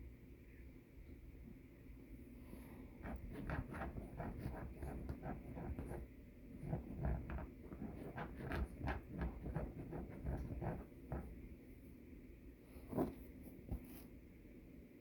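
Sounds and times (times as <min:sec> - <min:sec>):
dog scratching couch cushions: 0:03.0 - 0:06.0, 0:06.6 - 0:11.4.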